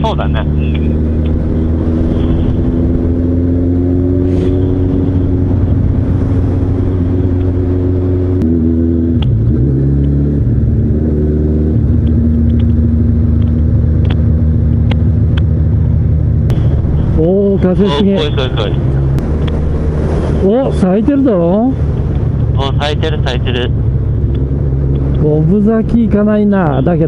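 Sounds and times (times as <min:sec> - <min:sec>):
motorcycle engine running: 0:00.0 - 0:20.2.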